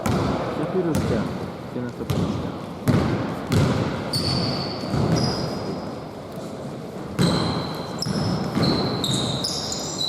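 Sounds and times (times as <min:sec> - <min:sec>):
basketball bouncing: 0:00.0 - 0:01.4, 0:02.0 - 0:05.8, 0:07.1 - 0:09.6
sneakers squeaking on court: 0:02.1 - 0:06.0, 0:07.1 - 0:10.0.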